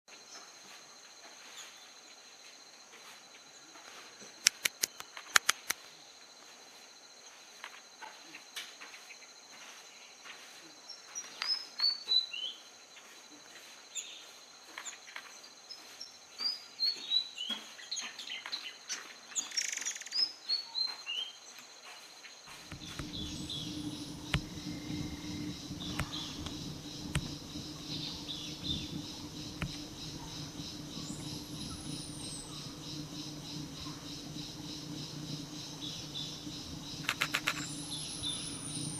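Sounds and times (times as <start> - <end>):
insect drone: 0.1 - 38.9
sharp loud clicks: 4.4 - 5.8, 35.6 - 38.4
low rumble: 22.5 - 38.9.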